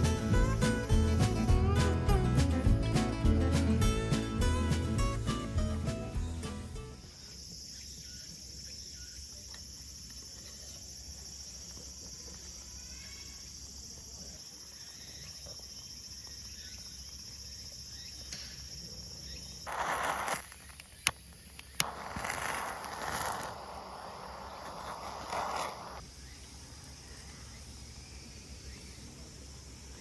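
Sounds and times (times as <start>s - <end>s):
high-pitched insect trill: 6.9s - 29.0s.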